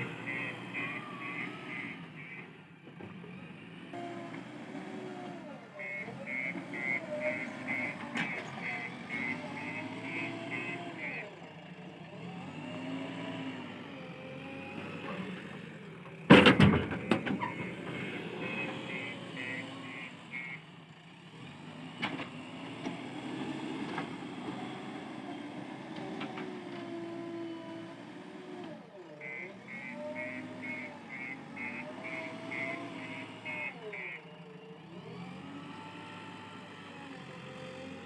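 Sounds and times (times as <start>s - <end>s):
diesel engine under load: 0.0s - 38.0s
reversing alarm beeps: 17.0s - 20.6s.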